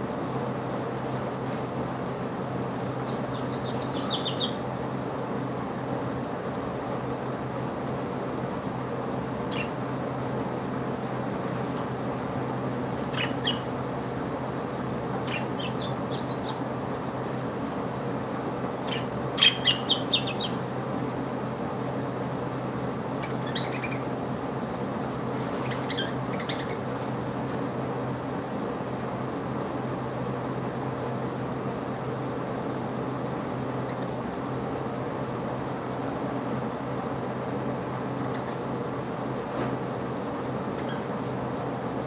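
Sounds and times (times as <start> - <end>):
steady background hum: 0.0 - 42.0
pet birds chirping: 2.8 - 4.9, 9.4 - 10.0, 12.9 - 13.8, 15.1 - 16.8, 18.7 - 20.8, 23.1 - 24.2, 25.3 - 27.1, 33.7 - 34.2, 38.1 - 38.8, 40.6 - 41.3.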